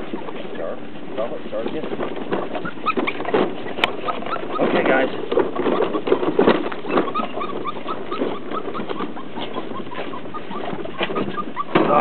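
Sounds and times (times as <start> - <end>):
birds chirping: 0.0 - 12.0
low loud bird calls: 2.5 - 12.0.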